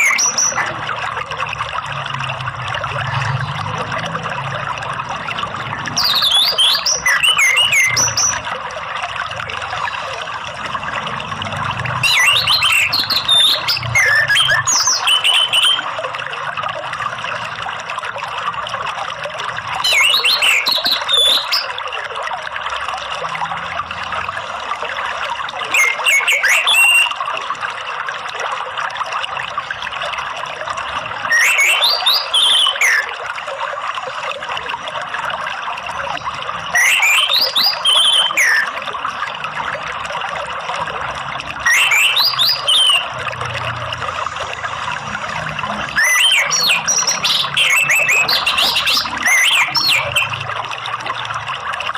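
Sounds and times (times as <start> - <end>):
thrush singing whistles: 0.0 - 0.7, 6.0 - 8.4, 12.0 - 15.9, 19.8 - 21.7, 25.7 - 27.2, 31.3 - 33.1, 36.7 - 38.7, 41.6 - 43.1, 45.9 - 50.4
running water: 0.0 - 51.9.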